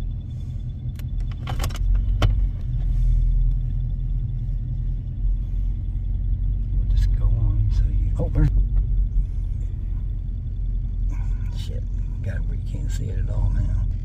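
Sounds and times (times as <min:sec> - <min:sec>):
faint high pulsing tone: 0:00.0 - 0:14.0
vehicle engine rumbling: 0:00.0 - 0:14.0
sharp clicks and rattles: 0:00.7 - 0:09.1.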